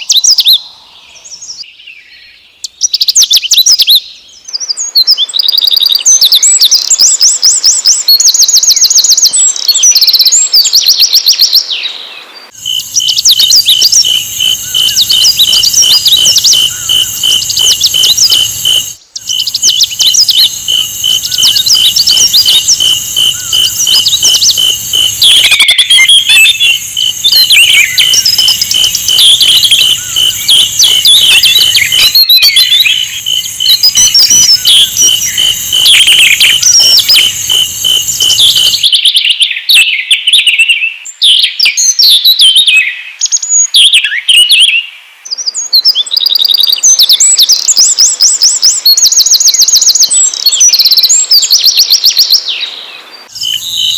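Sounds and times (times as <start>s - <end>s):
bird twittering trills: 12.5s - 38.9s, 53.2s - 53.9s
bird chirps and whistles: 12.6s - 42.9s, 53.3s - 53.9s.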